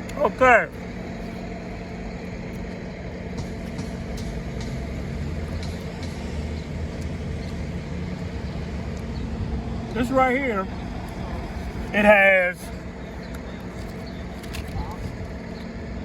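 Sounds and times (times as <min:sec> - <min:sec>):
low mechanical hum and rumble: 0:00.0 - 0:16.0.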